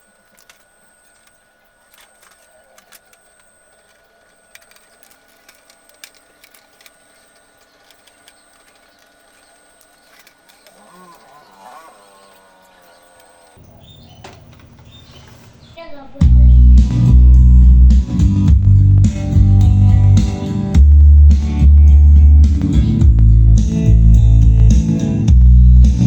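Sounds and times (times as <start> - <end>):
high-pitched whine: 0.0 - 26.0
wavering voice-like sound: 10.8 - 13.6.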